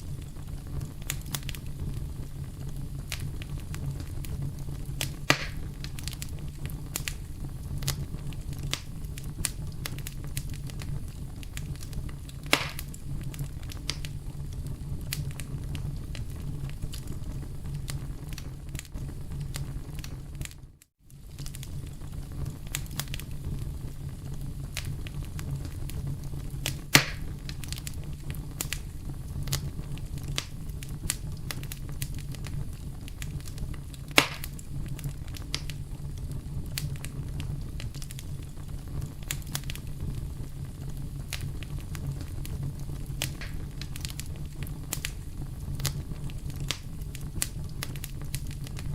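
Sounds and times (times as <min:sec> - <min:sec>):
burning wood popping: 0:00.0 - 0:48.9
campfire flames rumbling: 0:00.0 - 0:48.9
fire crackling: 0:00.0 - 0:48.9.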